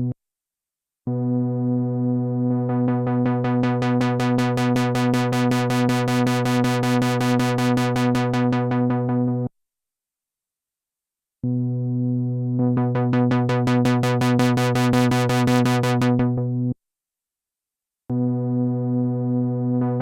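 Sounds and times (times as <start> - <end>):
pulsing low synth note: 1.1 - 3.8.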